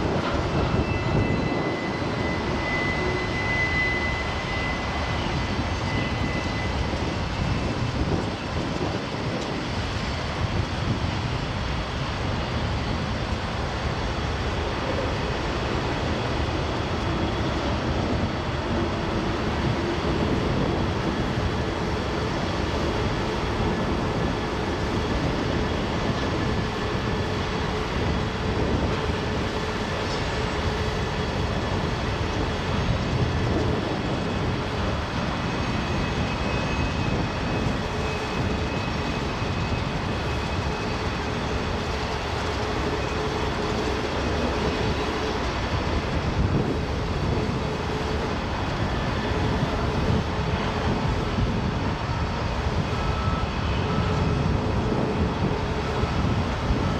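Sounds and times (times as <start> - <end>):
freight train wheels rumbling: 0.0 - 56.9.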